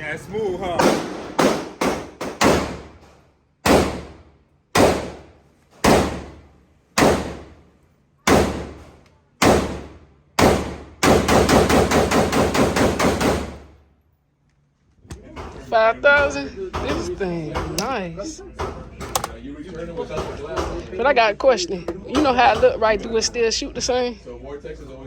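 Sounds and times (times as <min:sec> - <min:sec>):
gunshots ringing out: 0:00.8 - 0:03.0, 0:03.6 - 0:06.4, 0:07.0 - 0:07.6, 0:08.3 - 0:13.7.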